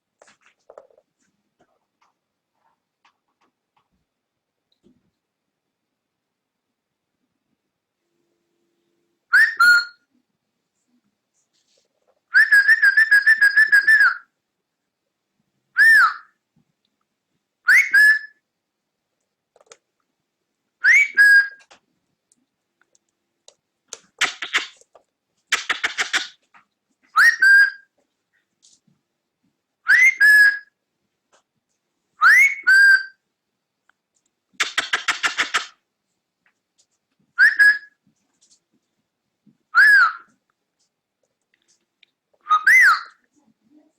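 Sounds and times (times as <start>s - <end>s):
cockatiel whistling calls: 9.3s - 10.0s, 12.4s - 14.2s, 15.8s - 16.2s, 17.7s - 18.4s, 20.8s - 21.6s, 25.5s - 26.3s, 27.2s - 27.8s, 29.9s - 30.7s, 32.2s - 33.2s, 37.4s - 38.0s, 39.8s - 40.3s, 42.5s - 43.2s
cockatiel warbled trill: 12.4s - 14.2s, 24.2s - 24.8s, 25.5s - 26.4s, 34.6s - 35.7s
cockatiel raspy chatter: 24.2s - 24.8s, 25.5s - 26.4s, 34.6s - 35.8s.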